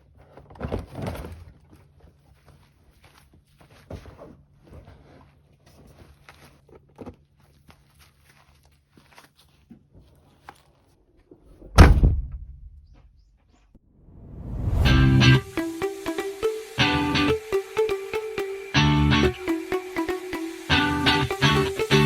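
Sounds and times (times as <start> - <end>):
loud thump: 11.7 - 12.8.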